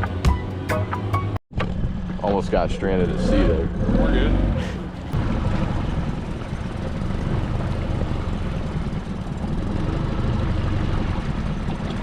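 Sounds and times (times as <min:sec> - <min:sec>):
outboard motor running: 0:04.6 - 0:12.0.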